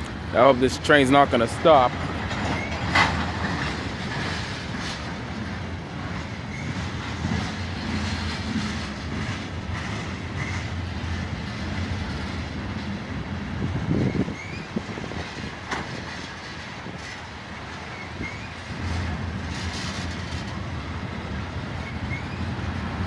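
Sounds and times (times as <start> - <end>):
freight train rolling on rails: 0.0 - 23.0.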